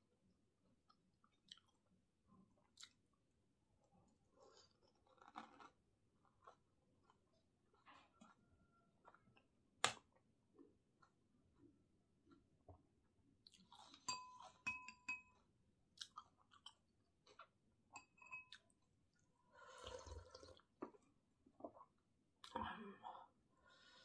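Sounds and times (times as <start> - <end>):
chewing and mouth sounds: 0.9 - 1.9, 2.5 - 3.1, 13.4 - 14.1, 16.0 - 17.5
spoon clinking on glass bowl: 14.1 - 15.4, 18.0 - 18.6.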